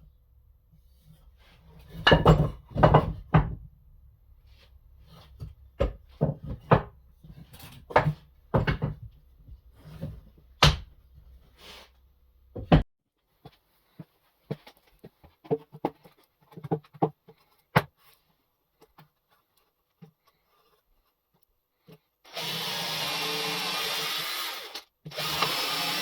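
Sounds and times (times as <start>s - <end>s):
wooden boards knocking and scraping: 1.8s - 3.6s, 5.1s - 9.2s.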